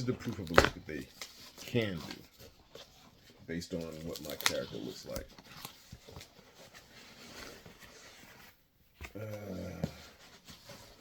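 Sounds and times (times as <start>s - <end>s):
packaging rustling: 0.0s - 8.2s.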